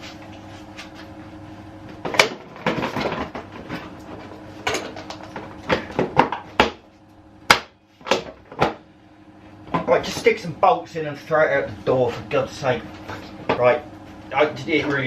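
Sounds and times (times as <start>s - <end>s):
low steady hum: 0.0s - 15.0s
knocks and clanks of parts: 2.0s - 6.8s, 7.6s - 8.8s.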